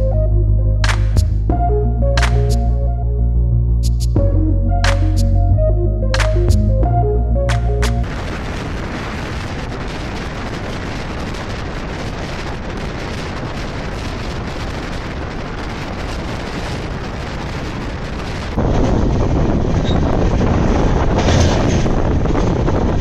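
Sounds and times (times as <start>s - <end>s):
train wheels rumbling on rails: 8.0s - 23.0s
wind rush of passing train: 8.0s - 23.0s.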